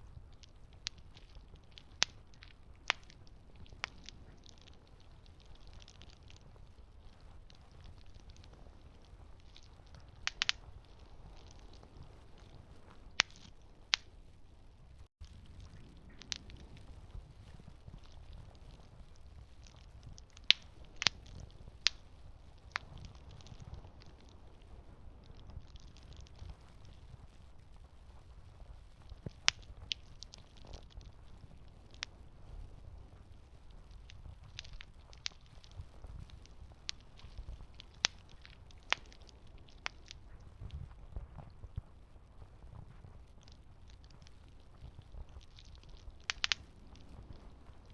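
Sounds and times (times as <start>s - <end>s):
burning wood popping: 0.0s - 47.9s
campfire rumble: 0.0s - 47.9s.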